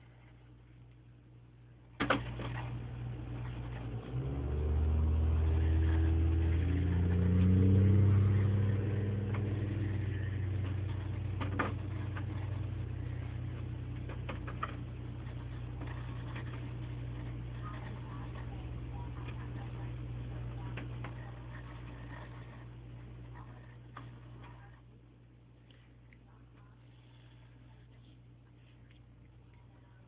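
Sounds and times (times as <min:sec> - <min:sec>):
motor humming: 0:02.0 - 0:24.8.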